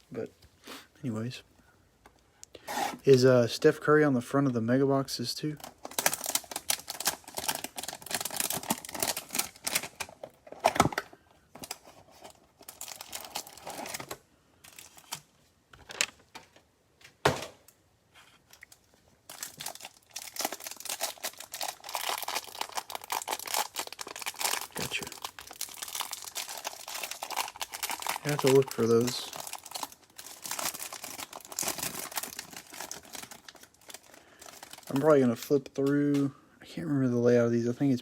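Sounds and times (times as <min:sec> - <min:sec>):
packaging crinkling and tearing: 0:05.6 - 0:16.6, 0:18.5 - 0:35.2.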